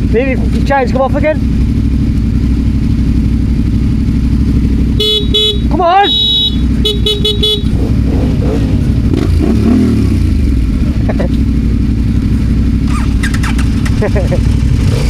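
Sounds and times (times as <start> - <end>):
motorcycle engine running: 0.0 - 15.0
motorcycle horn: 4.8 - 7.8.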